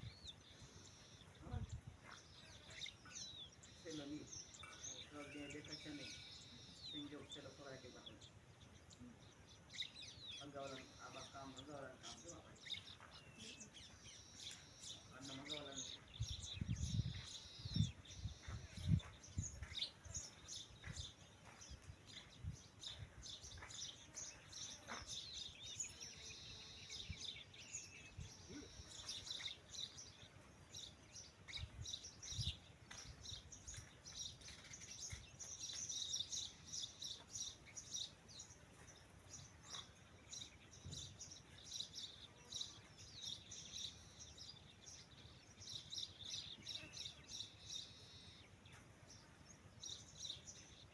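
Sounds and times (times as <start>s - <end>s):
small birds chirping: 0.0s - 50.9s.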